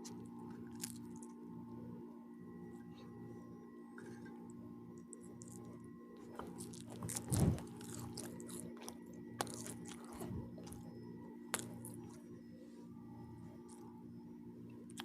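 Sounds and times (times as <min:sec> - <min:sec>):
chewing and biting food: 0:00.0 - 0:01.4, 0:05.1 - 0:12.3
wet mouth clicks: 0:11.5 - 0:12.2.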